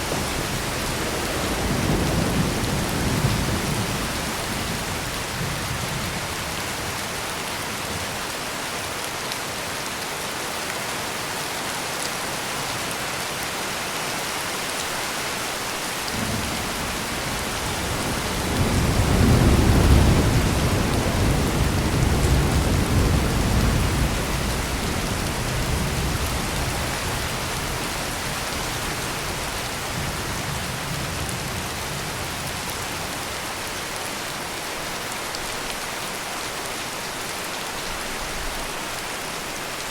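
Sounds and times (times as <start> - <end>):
heavy rain pouring: 0.0 - 39.9
deep roll of thunder: 0.2 - 6.0, 16.2 - 27.8.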